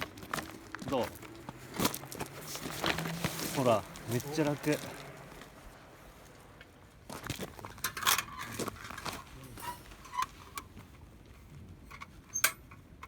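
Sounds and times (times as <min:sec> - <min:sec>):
objects being handled: 0:07.4 - 0:12.9.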